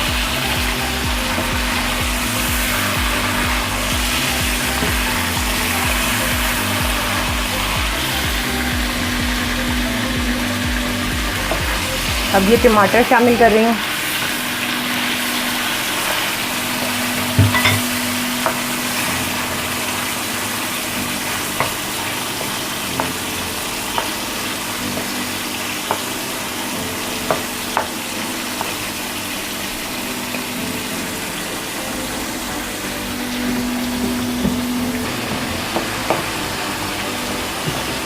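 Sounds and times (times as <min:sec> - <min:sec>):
food sizzling in a pan: 0:00.0 - 0:38.0
spoon knocking against pan: 0:17.2 - 0:18.6.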